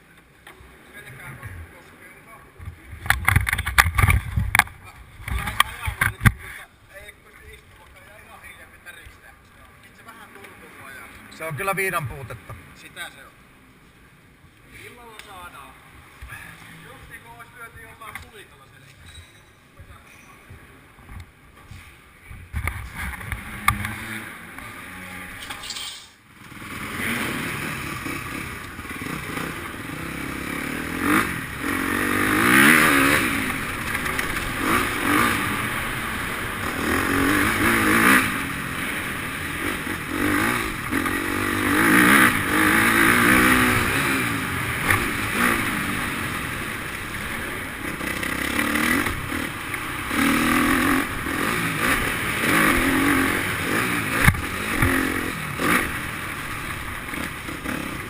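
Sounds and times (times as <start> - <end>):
motocross bike engines revving: 0.6 - 13.6, 22.6 - 58.0.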